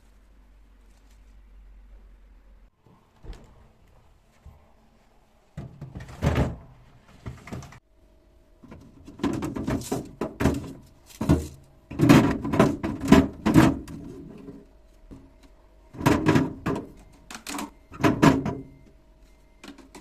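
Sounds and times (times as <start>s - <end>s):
knocks and clatters of objects: 5.5s - 7.8s, 8.6s - 18.8s
faint steady hum: 6.6s - 20.0s.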